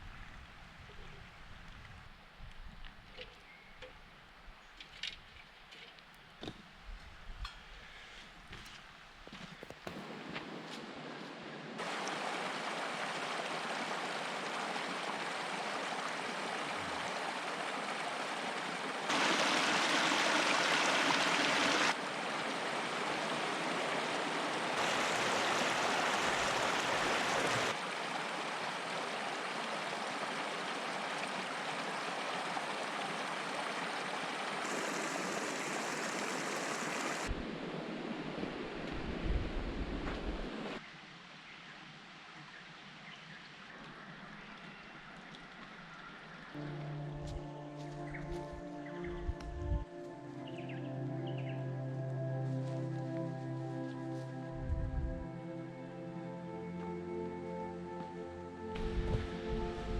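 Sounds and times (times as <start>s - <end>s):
water rushing in cascade: 11.8s - 40.8s.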